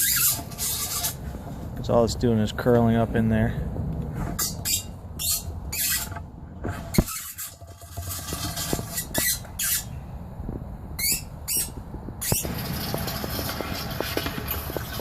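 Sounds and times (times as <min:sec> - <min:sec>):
pipe scraping against tank opening: 0:00.0 - 0:01.8, 0:04.1 - 0:10.0, 0:11.0 - 0:15.0.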